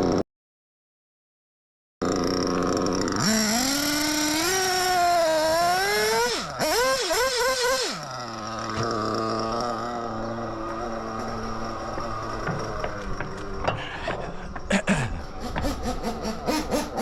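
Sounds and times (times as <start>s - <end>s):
nitro rc engine revving: 2.0s - 13.7s, 15.2s - 17.0s.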